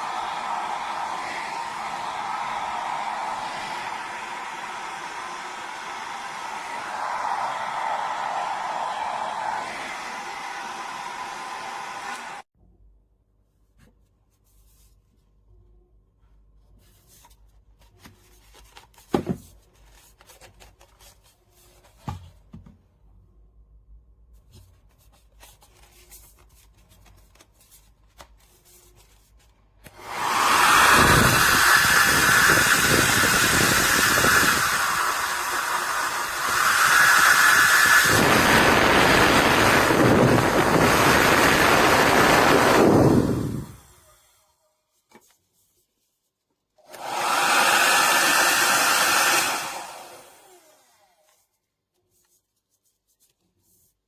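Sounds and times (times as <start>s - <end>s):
hair dryer blowing: 0.0s - 12.5s, 29.9s - 44.2s, 46.8s - 51.2s.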